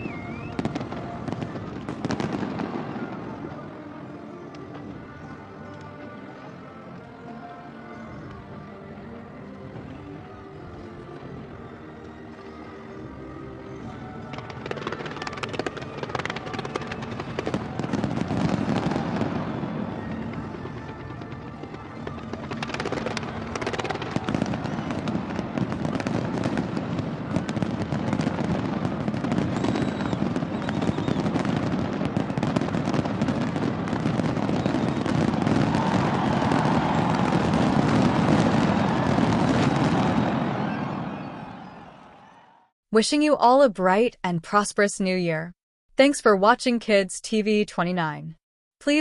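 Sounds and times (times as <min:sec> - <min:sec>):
fireworks bangs and crackling: 0:00.0 - 0:06.1, 0:13.7 - 0:42.3.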